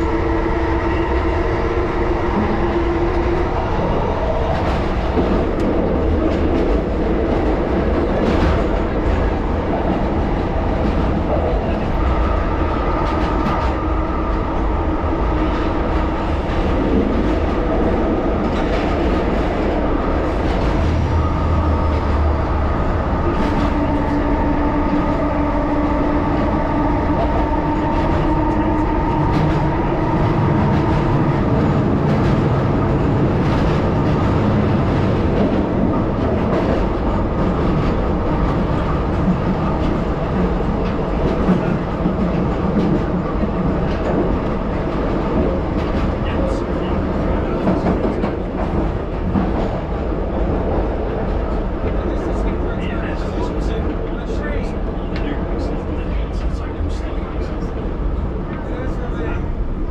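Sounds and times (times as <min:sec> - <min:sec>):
electric train rumbling on rails: 0:00.0 - 0:59.9
train whining tones: 0:19.6 - 0:43.0.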